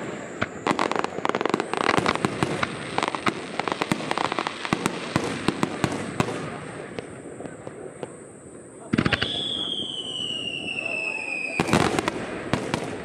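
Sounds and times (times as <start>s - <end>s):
fireworks crackling pops and cracks: 0.0s - 13.0s.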